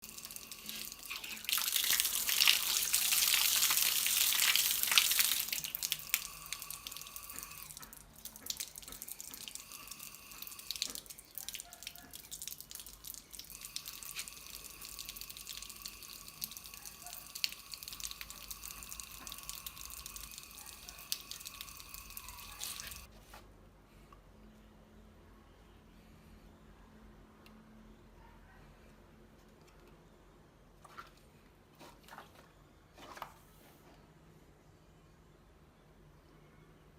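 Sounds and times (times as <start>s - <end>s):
water drips and splashes: 0.0s - 23.1s
water gushing from pipe: 0.0s - 23.1s.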